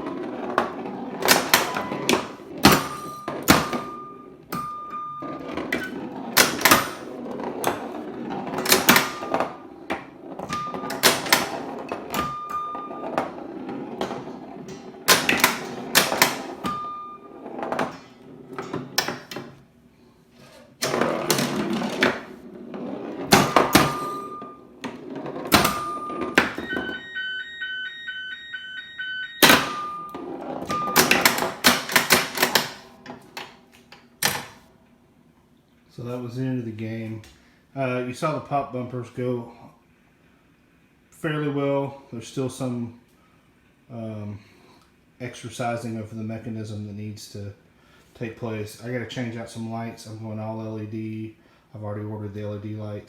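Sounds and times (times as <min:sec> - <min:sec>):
pinball bumper and flipper clacks: 0:00.0 - 0:19.6, 0:20.8 - 0:27.1, 0:29.4 - 0:34.7
pinball rolling: 0:00.0 - 0:19.6, 0:20.4 - 0:34.7
short beeps: 0:01.6 - 0:02.2, 0:02.9 - 0:05.9, 0:12.2 - 0:13.2, 0:16.6 - 0:17.3, 0:23.7 - 0:24.6, 0:25.6 - 0:31.4.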